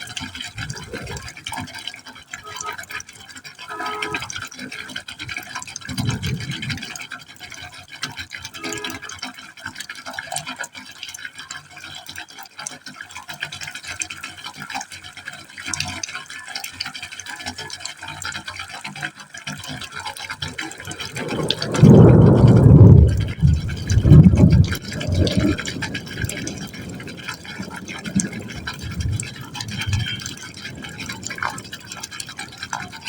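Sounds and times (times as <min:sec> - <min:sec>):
deep water rush: 0:00.0 - 0:10.9, 0:15.2 - 0:33.0
small drips: 0:00.0 - 0:33.0
water splashing into pipe: 0:00.0 - 0:33.0.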